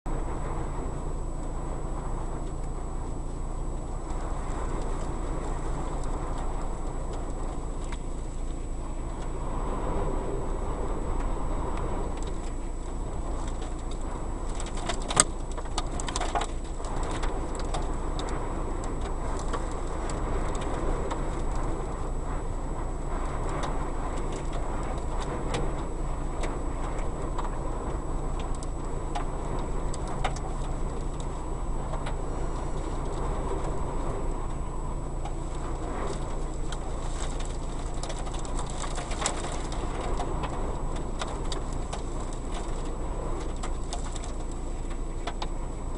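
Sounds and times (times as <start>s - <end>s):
strong wind buffeting microphone: 0.1s - 45.9s
ticks and rattles: 12.2s - 21.9s, 23.1s - 45.9s.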